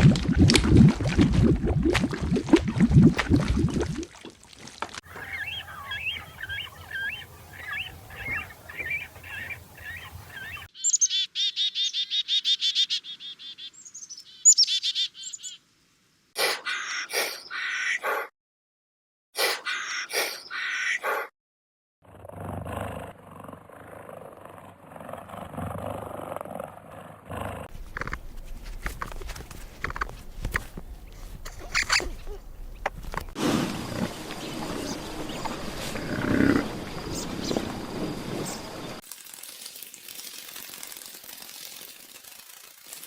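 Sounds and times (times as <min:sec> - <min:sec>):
bird chirps: 0:05.1 - 0:15.6, 0:31.0 - 0:32.9
wild animal sounds: 0:35.3 - 0:37.4
lion roaring: 0:35.8 - 0:37.0.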